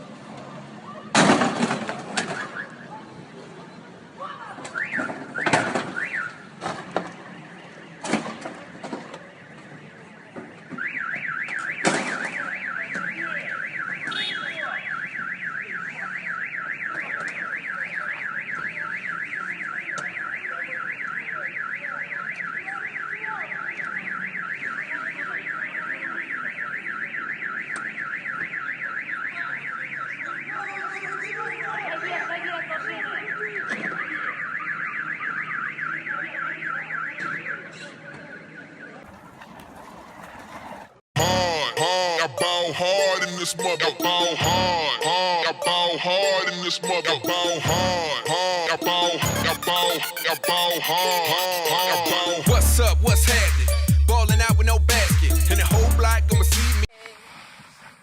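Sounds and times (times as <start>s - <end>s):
electronic alarm siren warbling: 42.2s - 56.8s.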